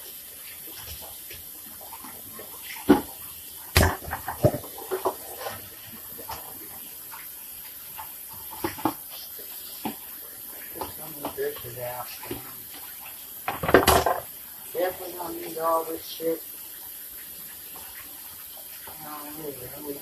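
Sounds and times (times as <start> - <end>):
water running from tap: 0.0 - 20.0
dishes knocking and clacking: 13.5 - 14.3.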